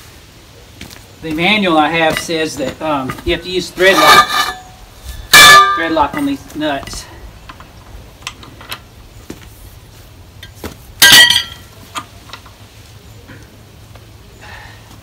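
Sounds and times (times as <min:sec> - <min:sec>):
steel parts clinking: 0:02.1 - 0:08.9, 0:10.4 - 0:12.5
loud ringing metal clang: 0:04.0 - 0:06.4, 0:11.0 - 0:11.7.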